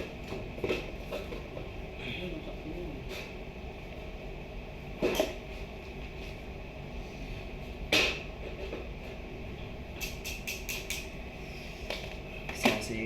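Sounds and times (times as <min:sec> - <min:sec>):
light clicks of pieces fitted: 0:10.0 - 0:11.1.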